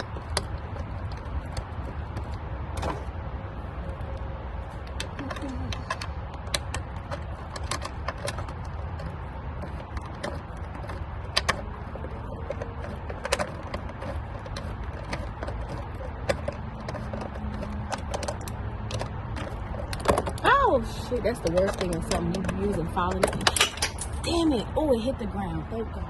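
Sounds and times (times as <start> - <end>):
low background rumble: 0.0 - 26.0
hand tools clicking on metal: 4.8 - 24.3.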